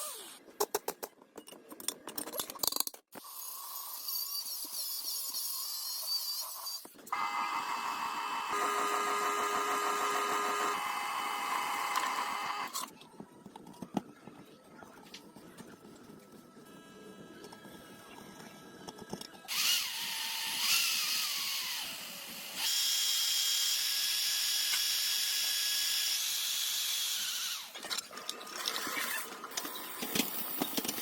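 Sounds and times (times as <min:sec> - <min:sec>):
machine whine with steady tones: 0:07.1 - 0:22.7.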